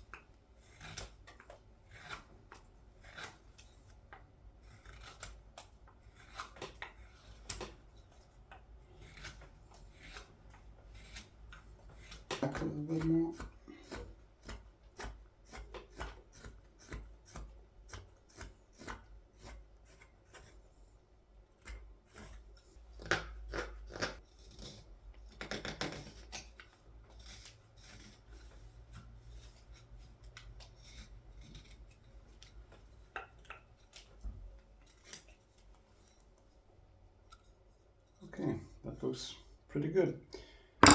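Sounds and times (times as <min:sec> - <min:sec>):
blade scraping wood: 0:00.1 - 0:07.8.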